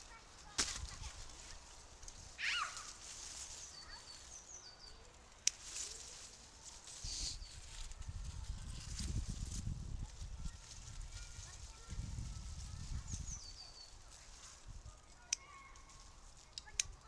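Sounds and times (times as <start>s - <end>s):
low rumble of wind: 0.0s - 17.0s
woodland birds calling: 2.4s - 3.0s, 3.6s - 5.5s.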